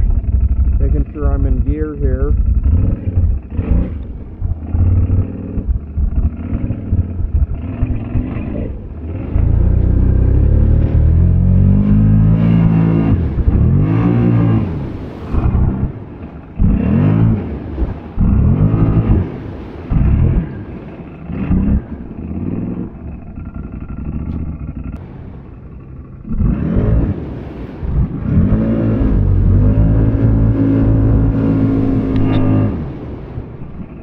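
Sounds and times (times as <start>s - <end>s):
quad bike engine revving: 0.0s - 33.1s.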